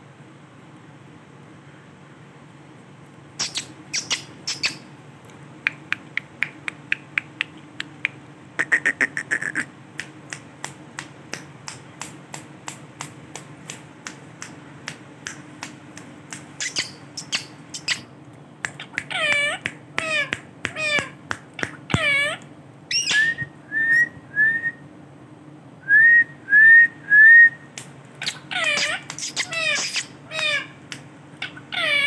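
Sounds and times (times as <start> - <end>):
parrot clicking chirps: 3.4 - 4.8, 5.7 - 10.5, 14.4 - 23.2, 27.8 - 32.0.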